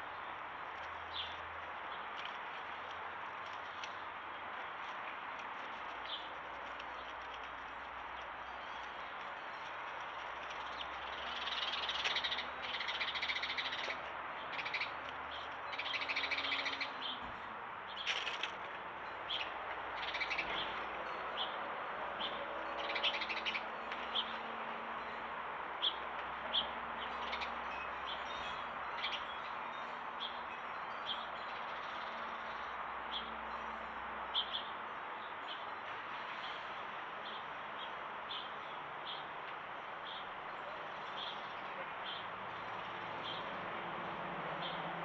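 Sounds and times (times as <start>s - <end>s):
small birds chirping: 0.0s - 18.4s.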